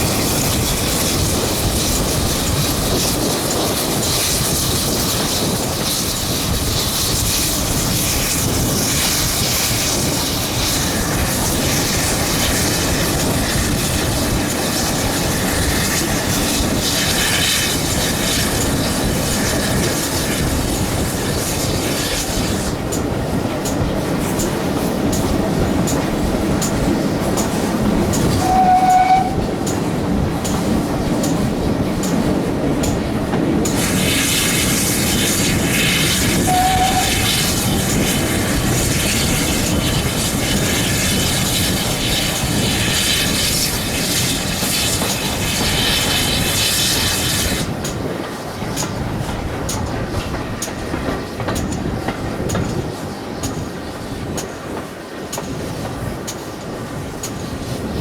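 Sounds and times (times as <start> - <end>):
loud steam hiss: 0.0 - 58.0
steam train rumble and clicks: 0.0 - 58.0.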